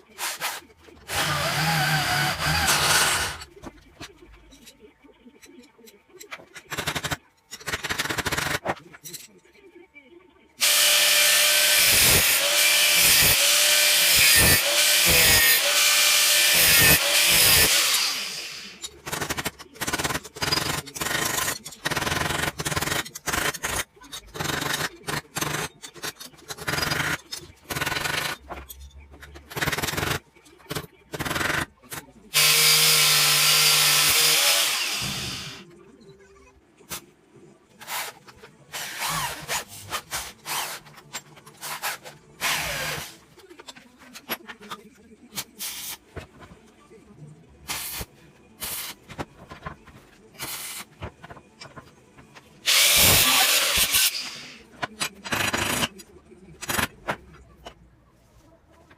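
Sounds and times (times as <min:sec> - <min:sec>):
power drill running: 0:01.1 - 0:03.4, 0:10.6 - 0:18.7, 0:32.4 - 0:35.6.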